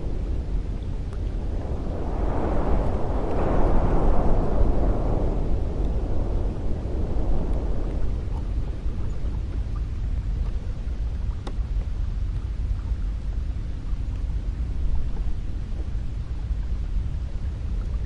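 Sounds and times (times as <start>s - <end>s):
wind blowing with deep rumble: 0.0s - 18.0s
faint ticks: 9.3s - 14.3s.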